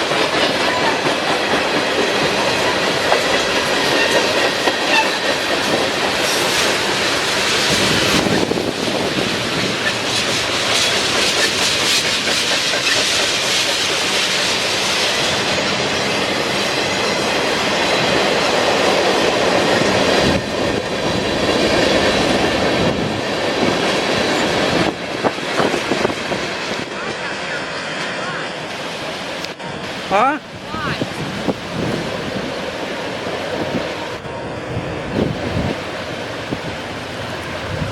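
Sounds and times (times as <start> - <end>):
train wheels clicking over rail joints: 0.0 - 27.2.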